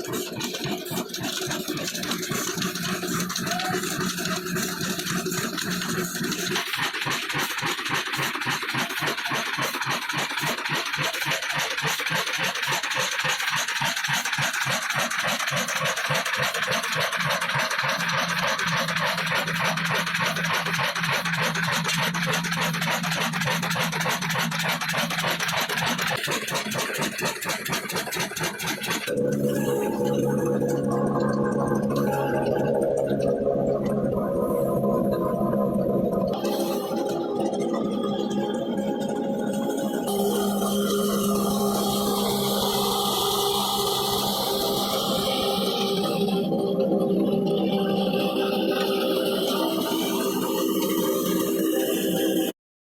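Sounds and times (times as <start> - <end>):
diesel engine running: 0.0 - 37.2.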